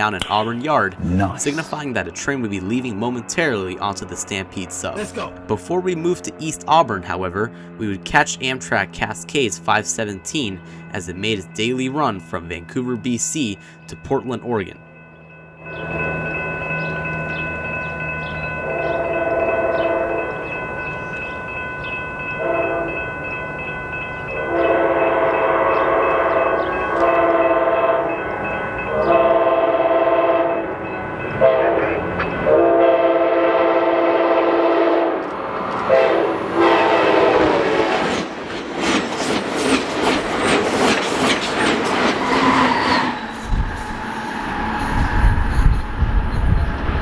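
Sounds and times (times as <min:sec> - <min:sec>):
train horn blasts: 0:18.6 - 0:20.6, 0:22.4 - 0:23.2, 0:24.3 - 0:38.2
train wheels clickety-clack: 0:37.9 - 0:47.0.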